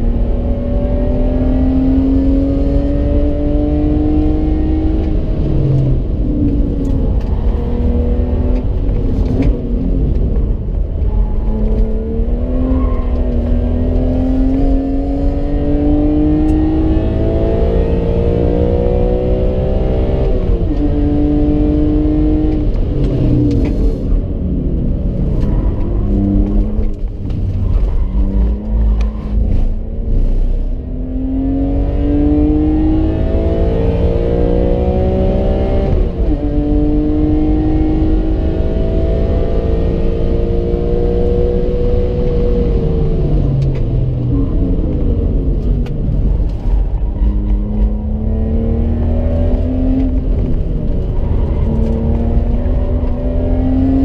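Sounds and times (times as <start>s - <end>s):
car engine revving: 0.0s - 54.0s
tyre and road rumble: 3.8s - 31.5s, 42.4s - 54.0s.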